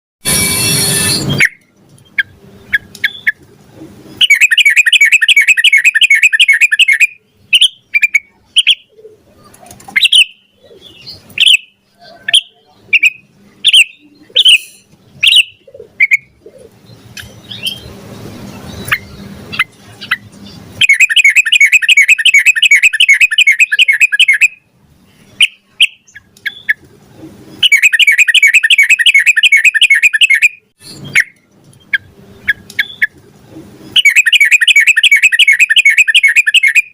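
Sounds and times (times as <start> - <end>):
bird chirping: 1.1 - 36.9
bird rapid repeated notes: 4.2 - 8.9, 9.9 - 10.6, 11.2 - 16.4, 17.0 - 24.6, 27.6 - 33.2, 33.9 - 36.9.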